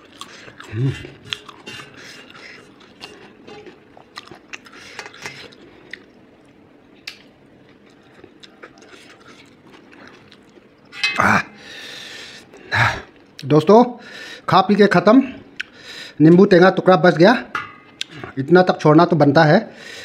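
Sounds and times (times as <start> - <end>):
man chewing quietly: 0.0 - 13.6, 15.4 - 16.2.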